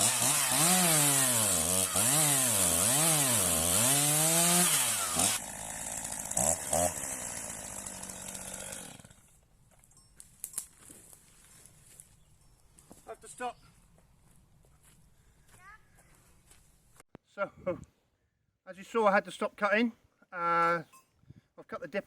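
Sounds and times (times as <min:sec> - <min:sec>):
chainsaw cutting wood: 0:00.0 - 0:09.4.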